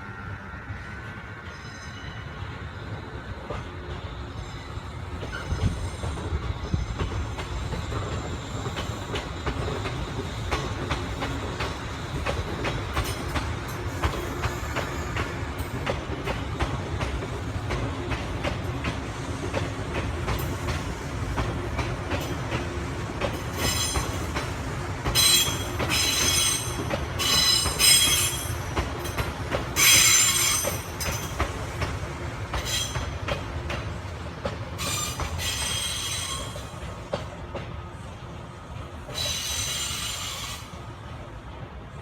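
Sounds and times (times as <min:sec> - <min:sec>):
train wheels squealing: 0:00.0 - 0:16.8, 0:23.3 - 0:31.5, 0:32.5 - 0:33.3, 0:34.7 - 0:37.2, 0:39.1 - 0:40.9
train rumble and wheel clatter: 0:00.0 - 0:42.0.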